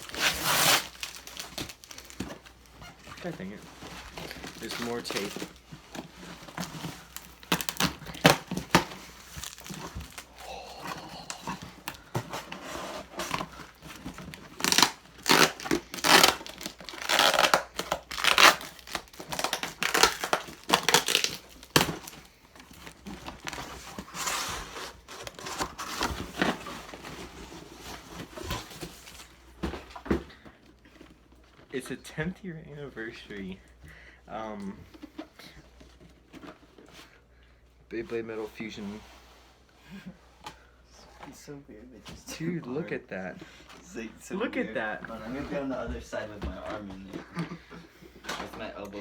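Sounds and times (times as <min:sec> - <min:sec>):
packing tape ripping: 0:00.0 - 0:02.4, 0:03.9 - 0:22.2
packaging crinkling: 0:00.0 - 0:29.3.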